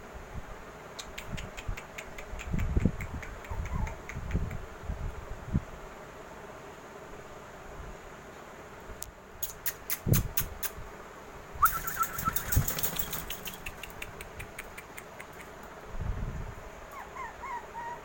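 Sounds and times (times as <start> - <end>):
puppy whining: 3.5 - 4.0, 16.9 - 18.0
sharp clicks and taps: 11.7 - 15.7
high whimpers: 17.0 - 18.0.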